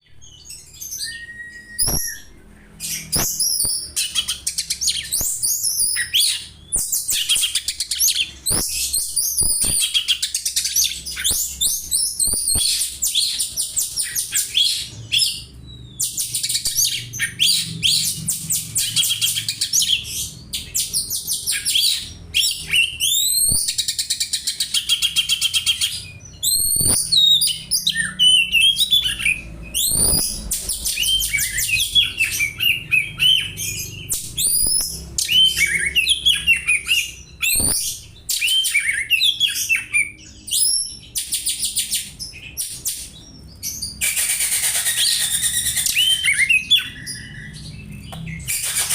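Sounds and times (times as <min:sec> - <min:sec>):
bird singing fast high chirps: 0:00.0 - 0:48.9
whistled bird note: 0:00.9 - 0:02.4.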